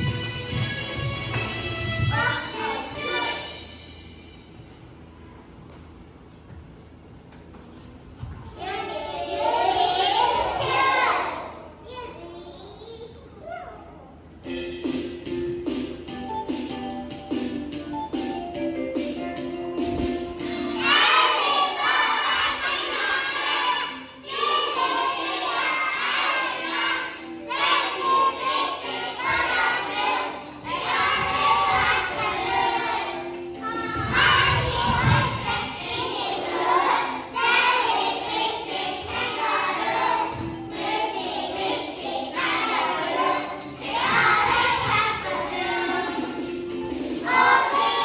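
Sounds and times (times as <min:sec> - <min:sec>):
music: 0:00.0 - 0:11.8, 0:13.8 - 0:48.0
children singing together: 0:08.6 - 0:11.7, 0:20.4 - 0:48.0.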